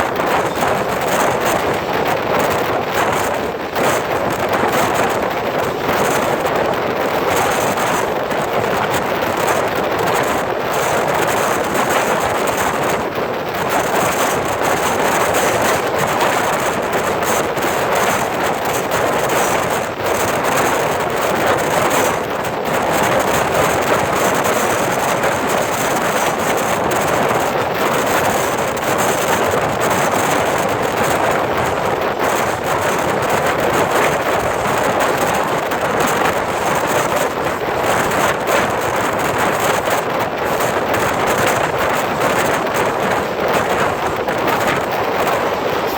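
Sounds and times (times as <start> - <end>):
train wheels rushing on rails: 0.0 - 45.9
wind buffeting microphone: 0.0 - 45.9.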